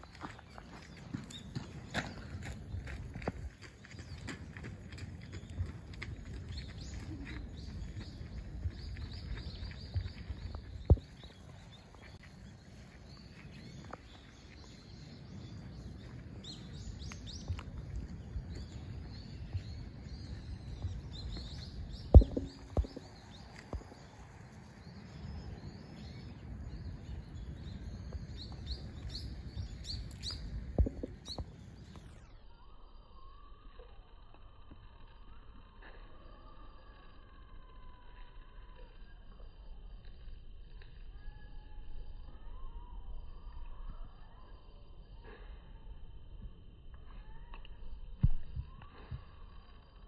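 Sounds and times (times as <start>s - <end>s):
steady low rumble: 0.0s - 32.4s
birds chirping: 0.0s - 32.7s
sharp knocks: 22.1s - 23.1s.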